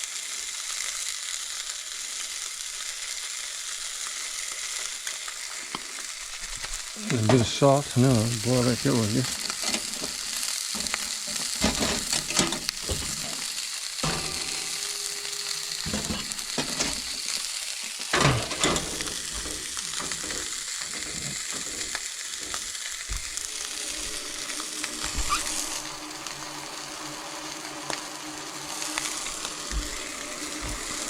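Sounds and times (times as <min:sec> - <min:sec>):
fish sizzling in a pan: 0:00.0 - 0:31.0
utensil clattering: 0:08.5 - 0:17.4, 0:18.1 - 0:25.8
utensil scraping a pan: 0:08.9 - 0:26.4.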